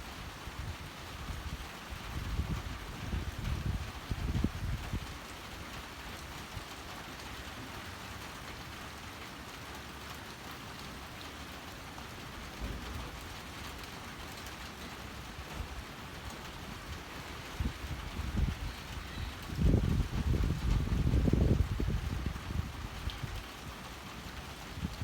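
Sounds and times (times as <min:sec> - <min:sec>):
steady rain falling: 0:00.0 - 0:25.0
wind gusts rumbling: 0:16.7 - 0:23.5.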